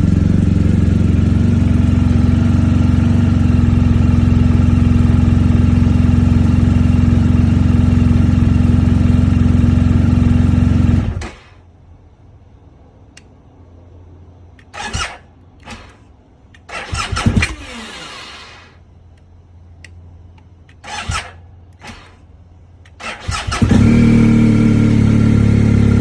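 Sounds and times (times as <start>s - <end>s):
motorcycle engine idling: 0.0s - 11.7s, 18.7s - 26.0s.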